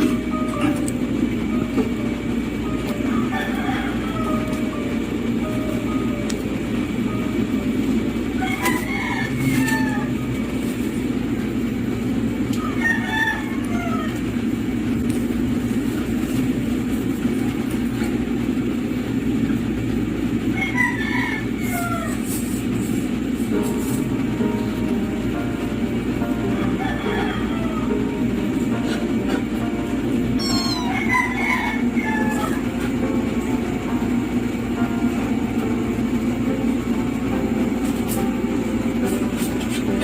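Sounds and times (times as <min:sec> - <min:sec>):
chicken calls: 0:30.4 - 0:32.7.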